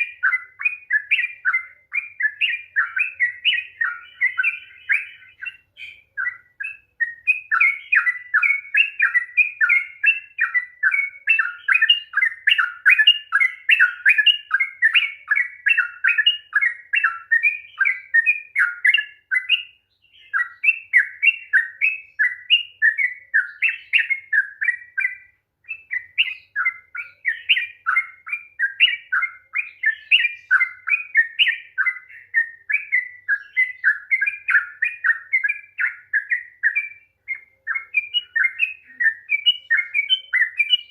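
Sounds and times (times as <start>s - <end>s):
bulbul chattering song: 0.0s - 40.9s.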